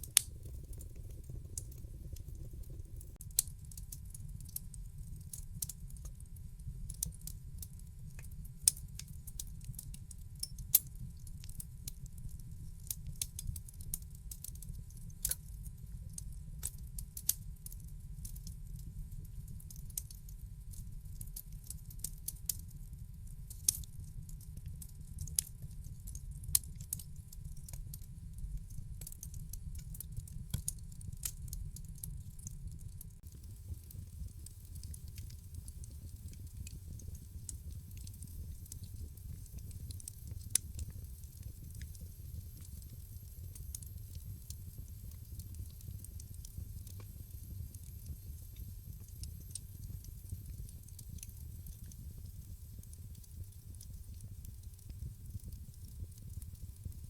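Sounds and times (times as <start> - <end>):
wood fire crackling: 0.0 - 15.4, 23.4 - 57.0
low rumble of fire: 0.0 - 57.0.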